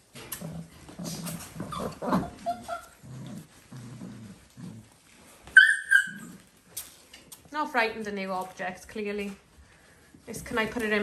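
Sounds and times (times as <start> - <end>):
puppies growling: 0.0 - 6.8
puppy yelping: 1.6 - 3.0, 5.5 - 6.4.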